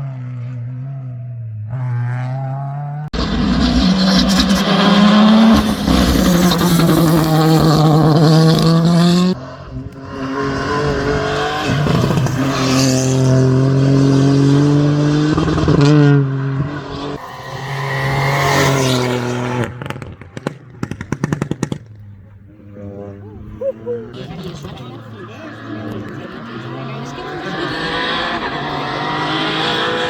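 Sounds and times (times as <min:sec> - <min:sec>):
race car engine at high revs: 0:00.0 - 0:30.0
exhaust pops and crackles: 0:19.4 - 0:22.8.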